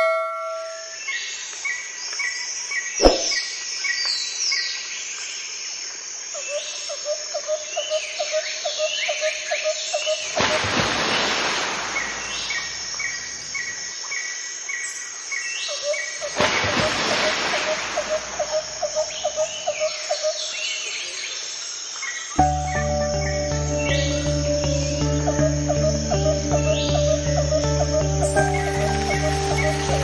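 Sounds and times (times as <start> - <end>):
falling bird whistles: 3.0 - 3.4
sharp click: 3.0 - 3.4
birds chirping: 3.0 - 3.5, 22.4 - 30.0.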